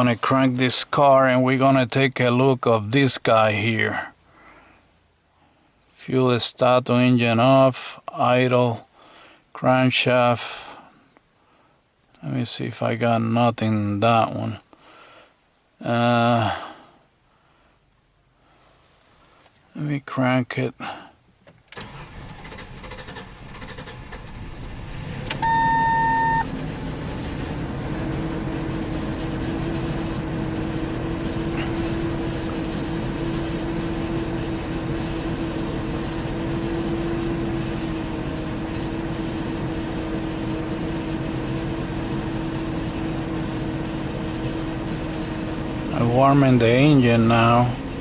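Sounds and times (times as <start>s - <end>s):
car engine cranking and idling: 21.2s - 48.0s
loud electronic beep: 25.4s - 26.5s.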